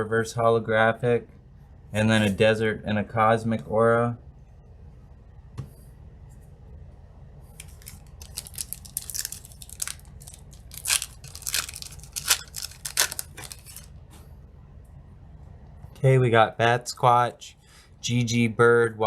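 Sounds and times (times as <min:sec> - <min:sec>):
wrapper tearing and crinkling: 0:07.6 - 0:13.9.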